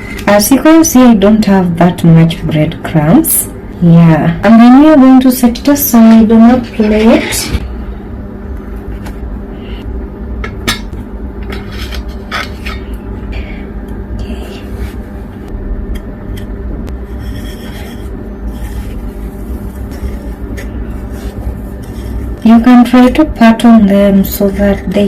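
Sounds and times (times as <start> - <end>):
steady low hum: 0.0 - 25.0
food scraping against a plate: 6.5 - 7.6, 11.4 - 12.9, 17.0 - 22.4.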